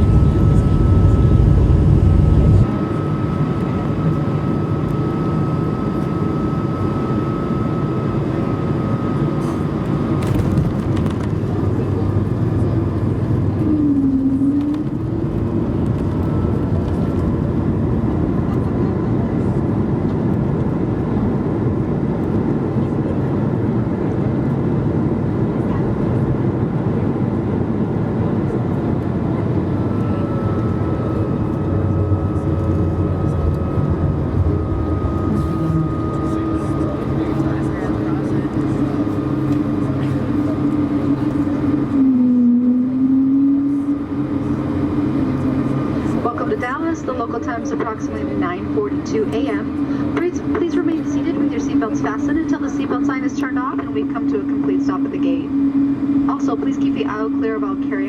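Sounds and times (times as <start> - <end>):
heavy low rumble: 0.0 - 5.3, 8.4 - 58.0
airliner cabin rumble: 0.0 - 58.0
faint steady whine: 29.4 - 58.0.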